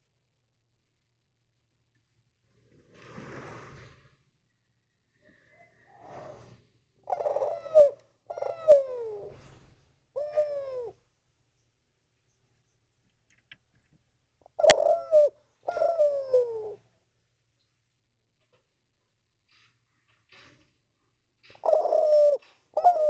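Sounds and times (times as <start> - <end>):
dove cooing: 5.2 - 11.0, 14.4 - 16.9, 21.5 - 23.0.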